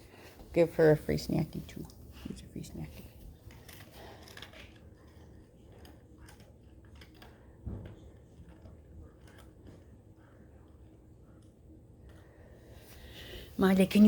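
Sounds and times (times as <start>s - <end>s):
dogs chewing treats: 2.2s - 11.0s.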